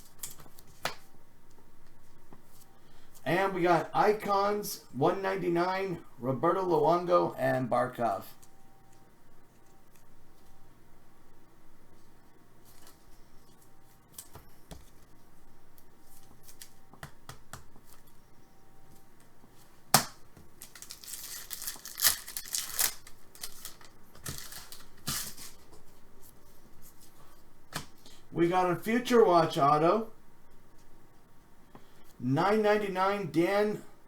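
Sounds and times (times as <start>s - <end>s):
wrapper tearing and crinkling: 20.6s - 25.6s.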